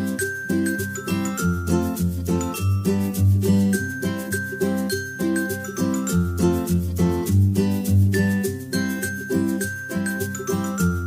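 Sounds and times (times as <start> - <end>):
rhythmic tune with strong bass: 0.0 - 11.0.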